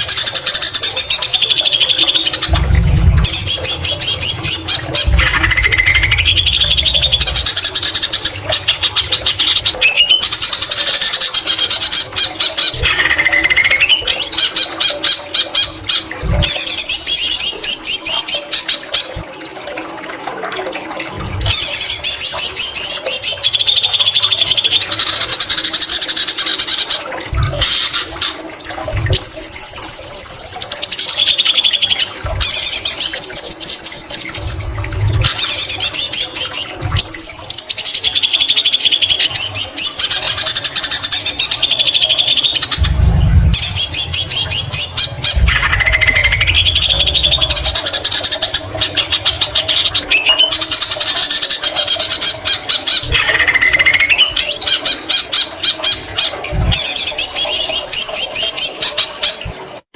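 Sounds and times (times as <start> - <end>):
low thumps: 2.4 - 9.6, 42.6 - 49.7.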